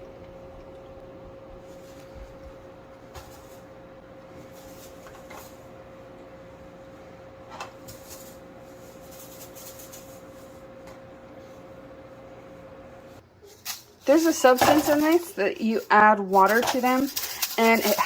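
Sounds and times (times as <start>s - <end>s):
air cooler fan humming: 0.0s - 18.0s
rustling: 7.8s - 10.7s.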